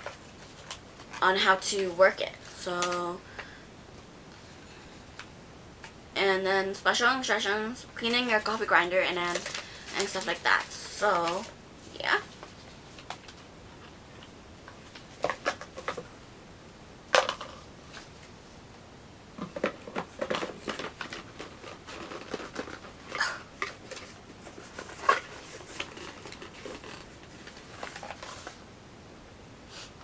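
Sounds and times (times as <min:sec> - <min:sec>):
box and paper rustling: 0:08.1 - 0:13.4, 0:14.7 - 0:16.1, 0:19.4 - 0:28.6.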